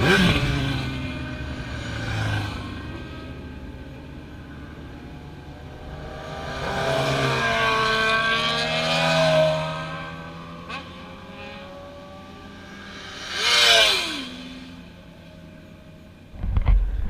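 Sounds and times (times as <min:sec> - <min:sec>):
motorcycle accelerating past: 0:00.0 - 0:03.6, 0:05.3 - 0:15.1.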